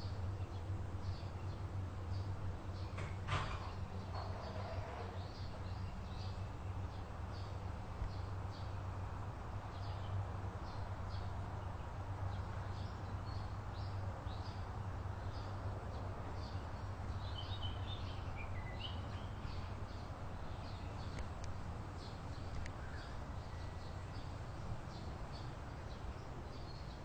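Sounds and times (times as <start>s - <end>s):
birds chirping: 0.0s - 8.9s, 9.7s - 27.0s
descending bird call: 3.6s - 5.9s.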